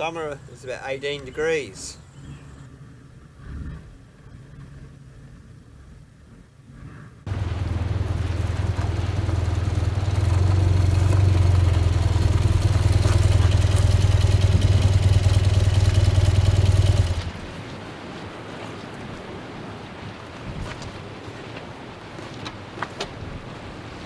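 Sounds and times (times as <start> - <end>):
motorcycle engine running: 7.3 - 17.5.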